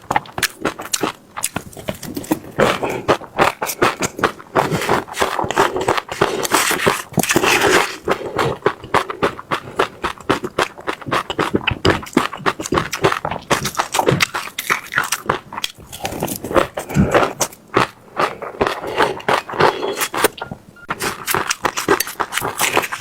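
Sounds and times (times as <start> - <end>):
chewing crunchy seeds: 0.0 - 23.0
wet mouth sounds: 0.2 - 23.0.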